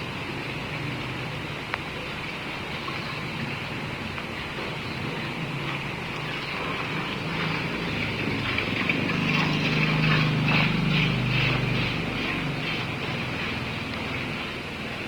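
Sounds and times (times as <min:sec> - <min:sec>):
steady hiss of rain: 0:00.0 - 0:10.5
passing engine hum: 0:00.0 - 0:15.0.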